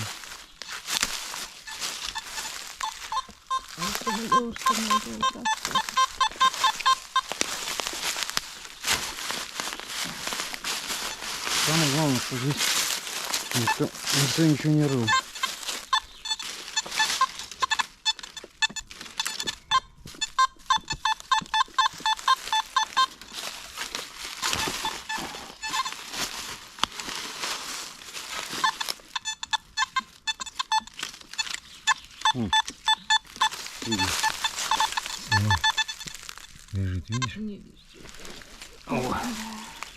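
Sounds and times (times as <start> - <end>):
metal detector short beeps: 0.0 - 8.4, 10.9 - 23.7, 24.4 - 26.1, 28.5 - 37.4
rustling of forest floor: 0.0 - 39.9.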